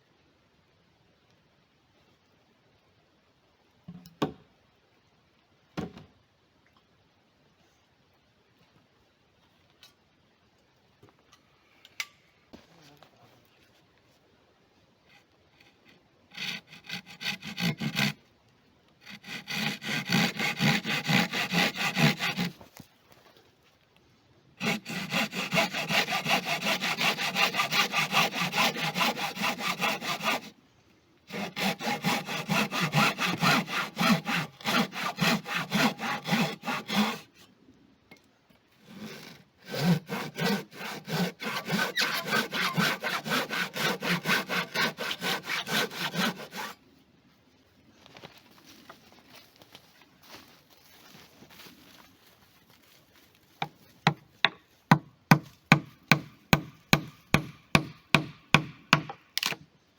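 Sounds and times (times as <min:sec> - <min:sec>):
hand saw cutting wood: 0:15.6 - 0:18.2, 0:19.0 - 0:22.6, 0:24.6 - 0:30.6, 0:31.3 - 0:37.5, 0:38.8 - 0:46.8, 0:54.9 - 0:59.6.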